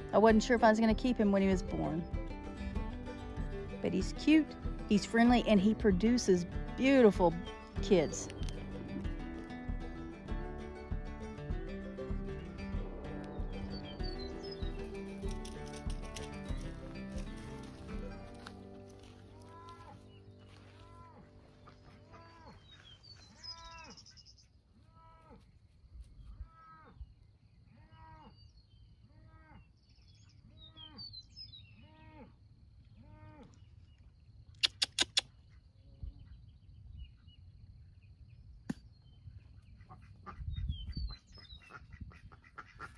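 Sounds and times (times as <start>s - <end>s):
farm animal calling: 13.2s - 25.5s, 26.2s - 32.4s, 39.6s - 42.9s
sharp clicks: 34.6s - 35.3s.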